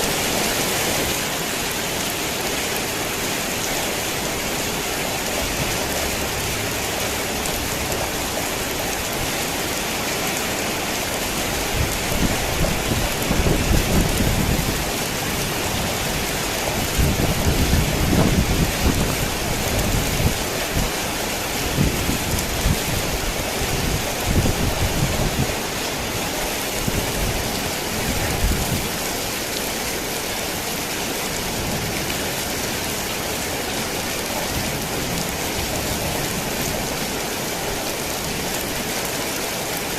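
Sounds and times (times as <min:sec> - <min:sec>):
heavy rain on a tin roof: 0:00.0 - 0:39.9.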